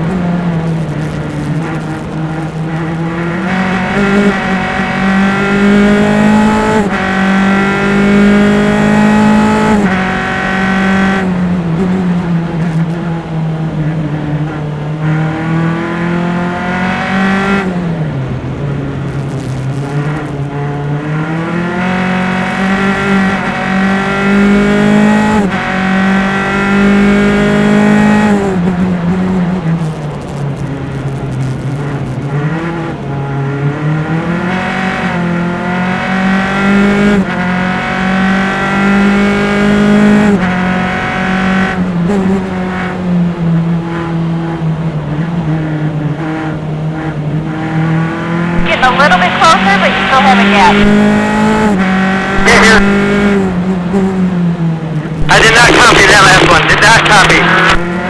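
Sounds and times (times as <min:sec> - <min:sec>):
race car engine accelerating: 0:00.0 - 0:58.0.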